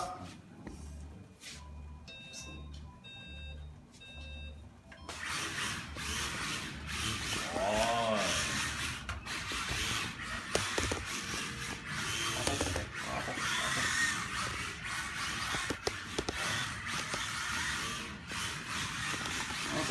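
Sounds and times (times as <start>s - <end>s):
small electric motors whining: 5.1s - 19.9s.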